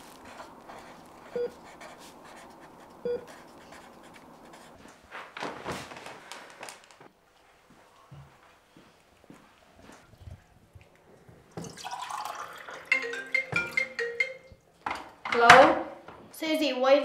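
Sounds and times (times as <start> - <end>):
rustling: 0.0 - 10.7.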